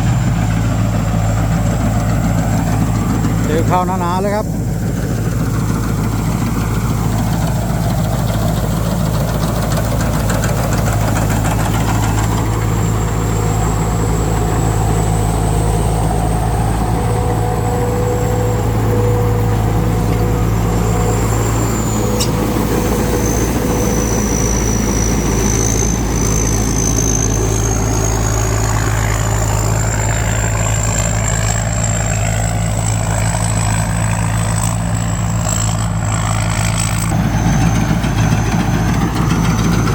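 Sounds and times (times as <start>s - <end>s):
combine harvester engine droning: 0.0s - 39.9s.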